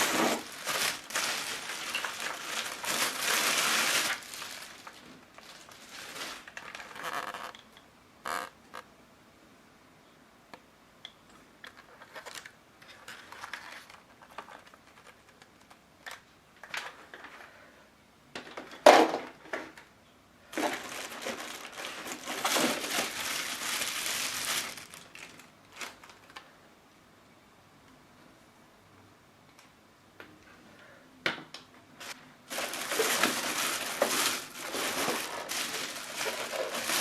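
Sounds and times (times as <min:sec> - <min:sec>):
packaging rustling: 0:00.0 - 0:07.4, 0:11.9 - 0:17.3, 0:20.5 - 0:26.4, 0:32.0 - 0:37.0
packaging crinkling: 0:00.0 - 0:07.5, 0:12.0 - 0:16.9, 0:20.5 - 0:26.4, 0:32.0 - 0:37.0.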